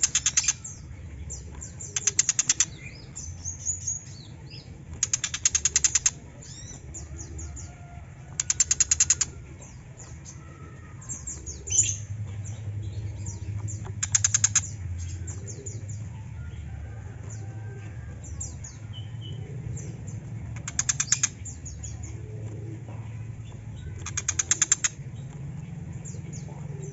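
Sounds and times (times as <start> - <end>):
bird chattering rattles: 0.0 - 0.8, 1.6 - 4.1, 4.9 - 7.0, 8.3 - 9.8, 13.2 - 15.7, 20.5 - 21.7, 23.8 - 25.3.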